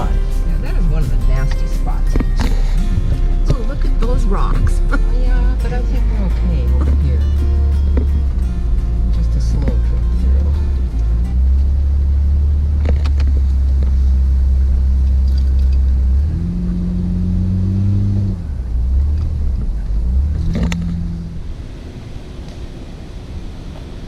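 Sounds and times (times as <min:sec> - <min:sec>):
truck engine droning: 0:00.0 - 0:24.0
sharp knocks from rough ground: 0:07.9 - 0:08.4.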